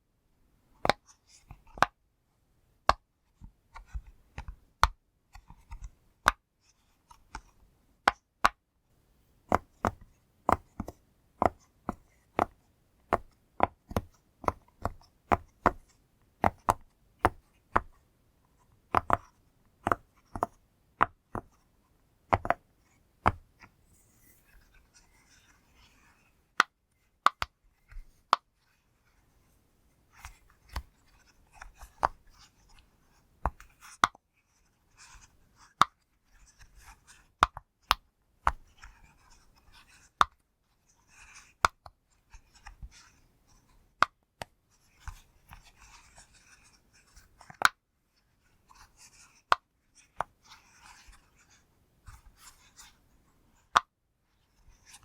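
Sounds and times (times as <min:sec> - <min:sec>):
soft rubbing and handling: 0:21.3 - 0:37.8, 0:38.5 - 0:55.0.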